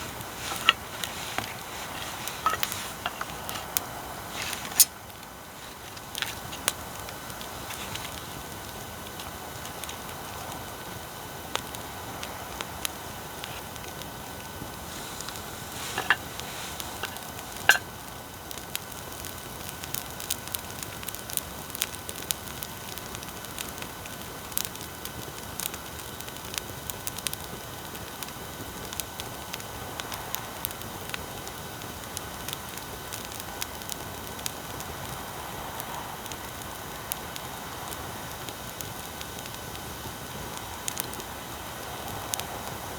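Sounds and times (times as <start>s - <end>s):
bonfire crackling and popping: 0.0s - 42.9s
recording hiss: 0.0s - 42.9s.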